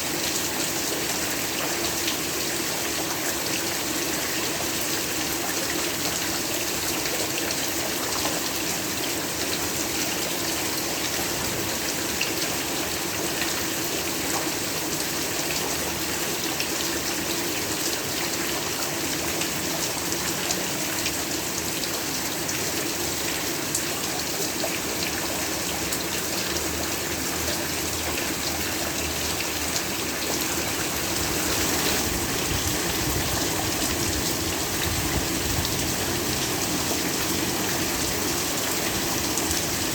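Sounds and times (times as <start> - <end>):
heavy rain falling: 18.6 - 39.9.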